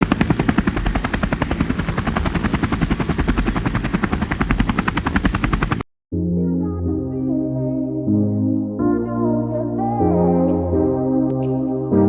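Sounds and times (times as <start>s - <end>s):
helicopter rotor blades chopping: 0.0s - 5.8s.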